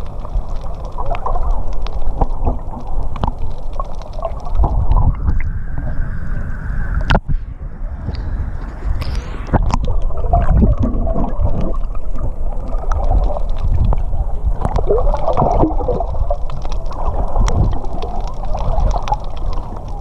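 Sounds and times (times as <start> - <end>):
muffled water sloshing underwater: 0.0 - 20.0
bubble pops: 14.6 - 16.4.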